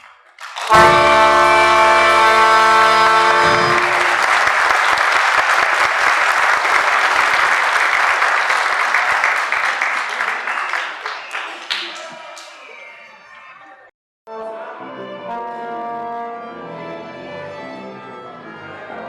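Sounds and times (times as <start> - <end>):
audience applause: 0.0 - 13.1
orchestra final chord with brass: 0.7 - 4.8.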